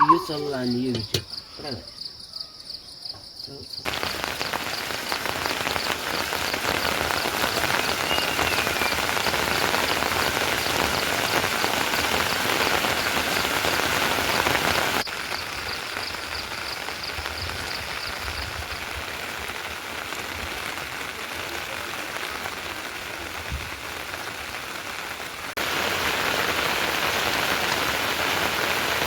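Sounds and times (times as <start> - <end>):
insect chirping: 0.0 - 18.9
heavy rain falling: 3.8 - 29.0.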